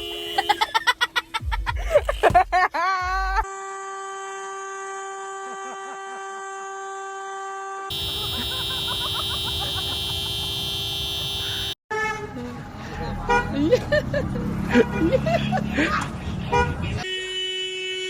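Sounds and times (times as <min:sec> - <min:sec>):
car horn long note: 0:03.5 - 0:12.3.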